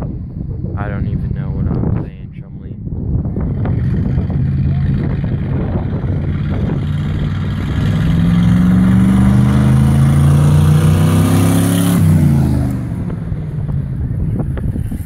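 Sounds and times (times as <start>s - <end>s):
car engine accelerating: 3.0s - 15.0s
car passing by: 6.4s - 13.2s.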